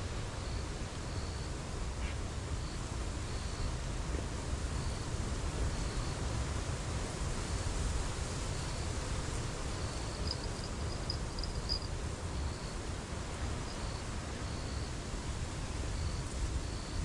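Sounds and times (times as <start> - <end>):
high insect-like chirps: 9.9 - 11.9.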